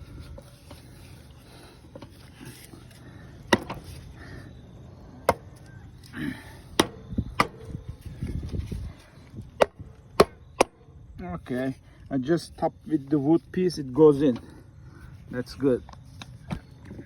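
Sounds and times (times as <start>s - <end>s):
sharp wooden knocks: 6.8s - 7.7s, 9.6s - 10.8s.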